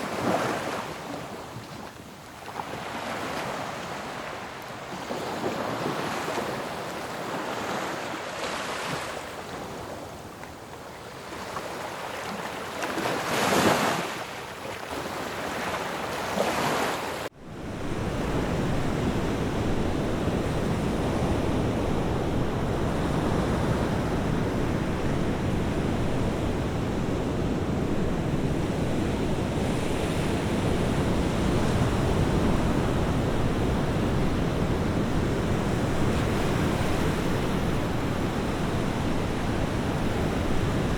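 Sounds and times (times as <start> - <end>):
waves breaking on shore: 0.0 - 40.9
deep continuous surf rush: 17.2 - 40.9.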